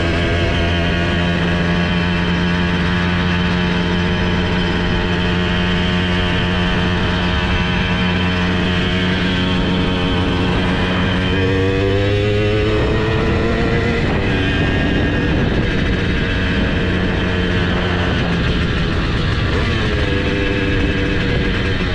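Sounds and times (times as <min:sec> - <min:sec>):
two-stroke moped engine running: 0:00.0 - 0:21.9.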